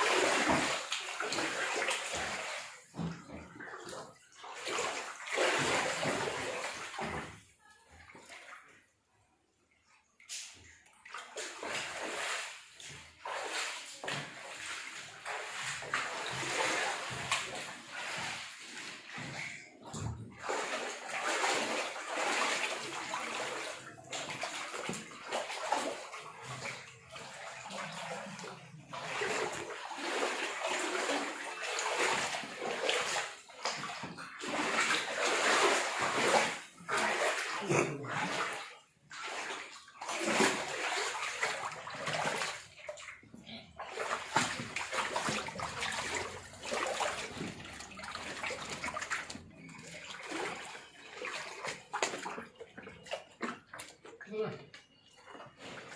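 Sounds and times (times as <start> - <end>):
rainwater running and splashing: 20.4 - 37.5, 43.9 - 52.3.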